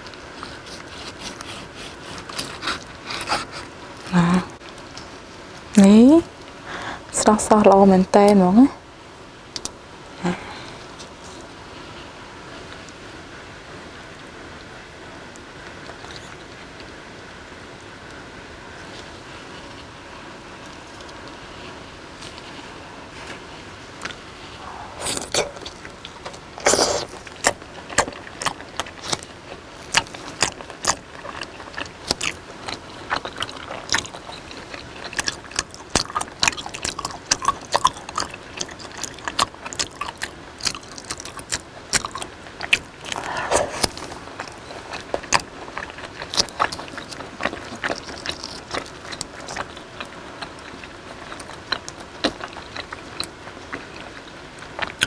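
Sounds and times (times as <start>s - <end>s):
chewing mouth noises: 0.0s - 5.7s, 15.3s - 16.9s, 20.6s - 55.0s.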